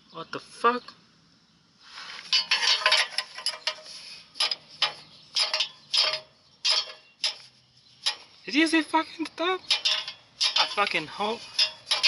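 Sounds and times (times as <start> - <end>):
metal knocking on metal: 2.3 - 8.4, 9.6 - 12.0.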